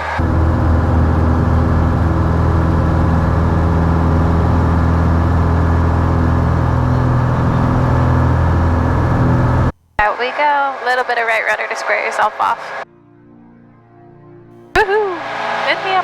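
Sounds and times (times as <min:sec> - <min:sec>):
propeller plane engine drone: 0:00.0 - 0:12.8, 0:14.8 - 0:16.0.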